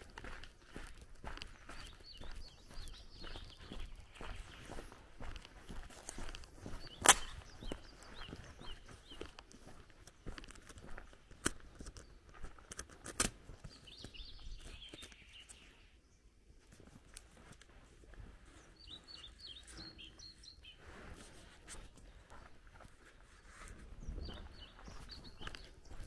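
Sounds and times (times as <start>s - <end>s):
songbirds chirping: 0.0s - 26.0s
sharp clicks: 7.0s - 7.4s.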